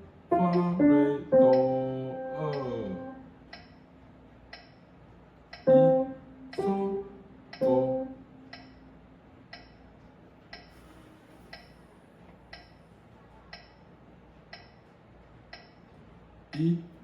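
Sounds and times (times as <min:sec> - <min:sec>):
metronome ticking: 0:00.3 - 0:03.8, 0:04.5 - 0:04.8, 0:05.5 - 0:08.8, 0:09.5 - 0:09.8, 0:15.5 - 0:15.8.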